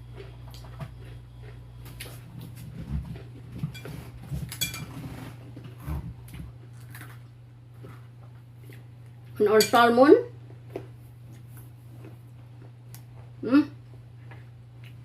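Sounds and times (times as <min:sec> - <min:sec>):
cutlery clinking on a plate: 0:03.7 - 0:05.0, 0:09.6 - 0:09.8.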